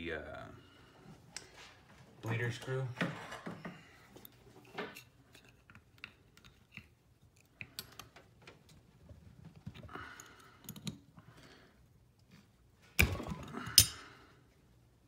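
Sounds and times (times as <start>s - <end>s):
hand tool clicks and metal taps: 10.6s - 11.0s, 13.7s - 14.0s.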